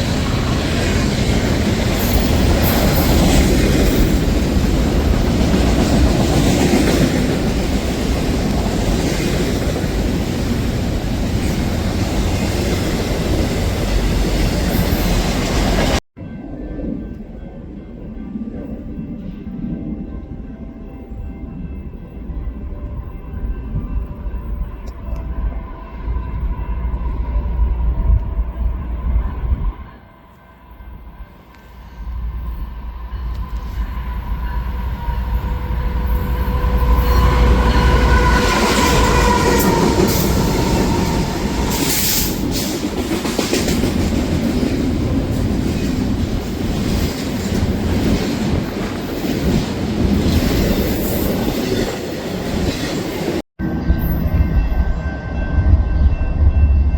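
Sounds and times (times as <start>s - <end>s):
train wheels on rails: 0.0s - 16.0s, 31.3s - 56.9s.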